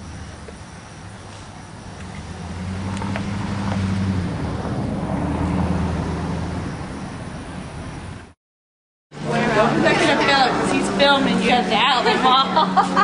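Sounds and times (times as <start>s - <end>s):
motor vehicle engine running: 0.0s - 8.4s.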